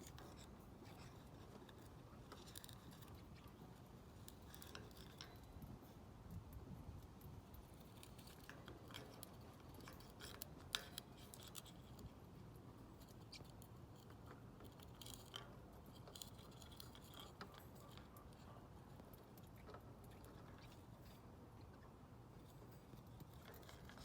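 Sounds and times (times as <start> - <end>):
beak chewing on toy: 0.0 - 24.0.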